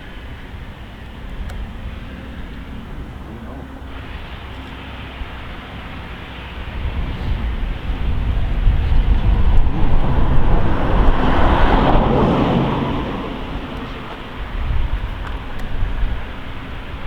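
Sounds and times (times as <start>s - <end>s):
vehicle passing by: 1.0s - 17.0s.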